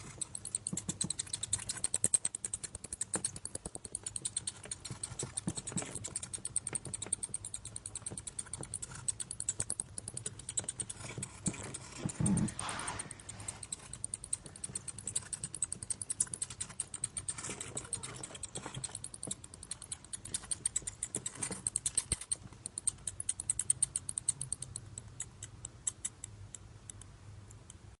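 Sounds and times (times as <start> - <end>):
bats chirping and clicking: 13.6 - 25.3.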